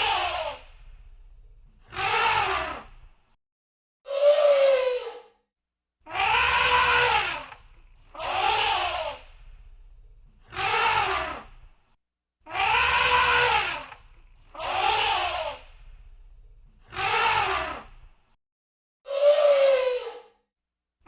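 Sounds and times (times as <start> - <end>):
elephant trumpeting: 6.1 - 9.2, 12.5 - 14.0.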